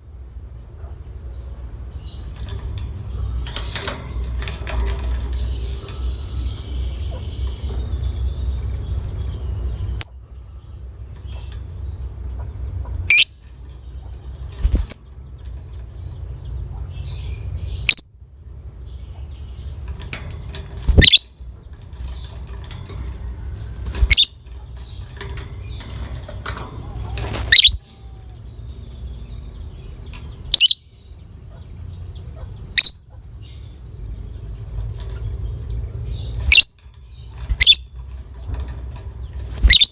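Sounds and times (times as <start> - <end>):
low background hum: 0.0 - 39.9
lovebird high calls: 20.8 - 22.3, 23.2 - 31.6, 36.1 - 37.9, 39.2 - 39.9.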